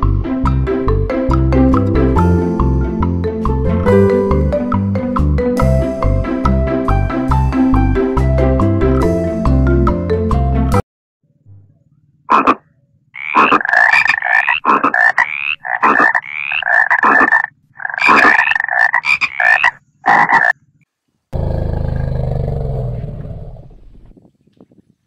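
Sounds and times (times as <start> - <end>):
frog croaking: 12.3 - 20.7.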